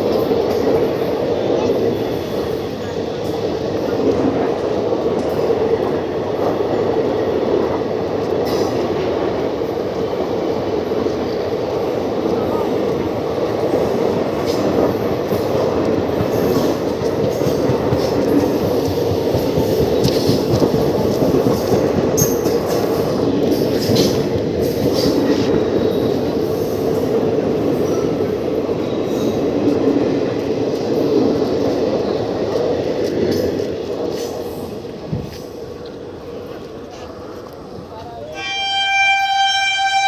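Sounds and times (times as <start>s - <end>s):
train wheels rumbling on rail: 0.0s - 40.0s
wheels clicking over rail joints: 13.7s - 25.6s.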